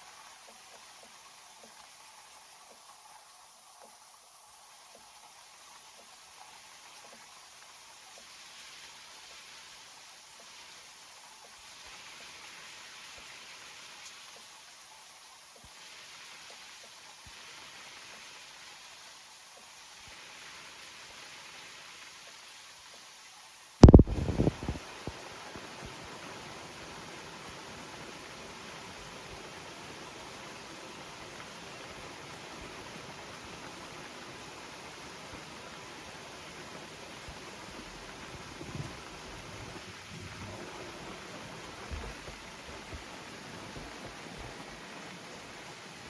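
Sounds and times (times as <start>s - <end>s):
loud thump: 23.8s - 24.6s
rain pattering on leaves: 23.8s - 45.6s.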